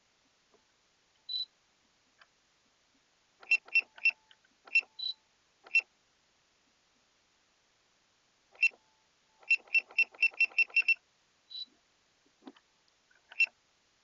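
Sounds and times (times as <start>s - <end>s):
sharp electronic clicks: 3.4s - 5.8s, 8.6s - 8.8s, 9.4s - 11.0s, 13.3s - 13.5s.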